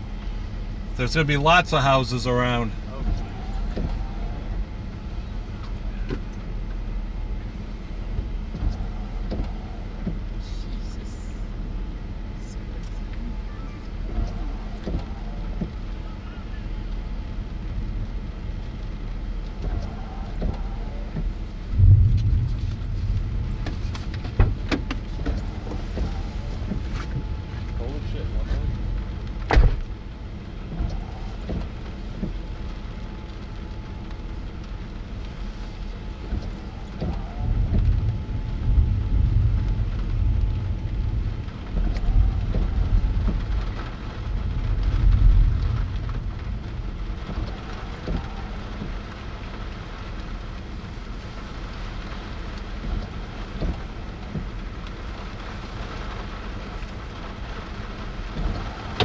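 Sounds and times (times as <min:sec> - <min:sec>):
rain falling: 0:00.0 - 0:59.0
raindrops ticking close by: 0:00.0 - 0:59.0
low thunder rumble: 0:13.2 - 0:59.0.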